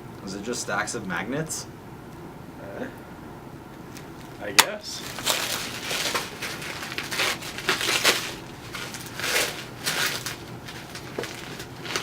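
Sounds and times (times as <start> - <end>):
packaging crinkling and rustling: 3.9 - 12.0.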